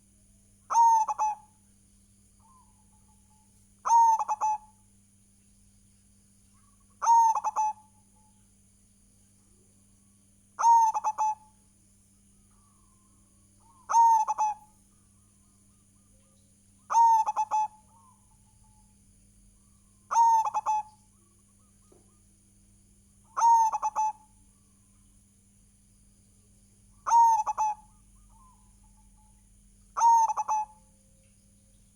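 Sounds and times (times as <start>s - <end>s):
dove cooing: 0.7s - 1.6s, 3.8s - 4.8s, 6.6s - 7.9s, 10.6s - 11.5s, 13.6s - 14.8s, 16.9s - 18.4s, 20.1s - 22.2s, 23.3s - 24.3s, 27.0s - 29.3s, 30.0s - 30.9s.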